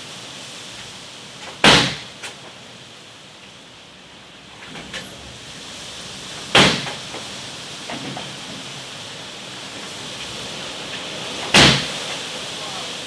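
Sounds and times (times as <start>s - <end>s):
loud bang: 1.6s - 2.1s, 6.5s - 7.2s, 11.5s - 12.0s.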